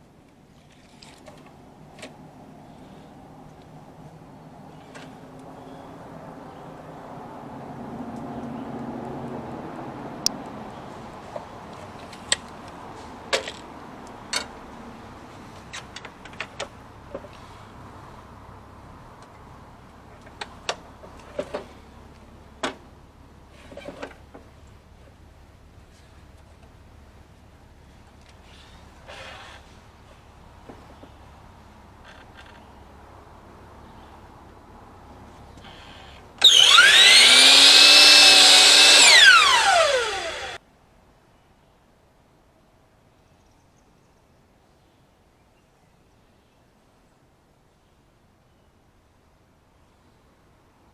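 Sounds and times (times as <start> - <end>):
power tool motor whining: 35.7 - 40.6.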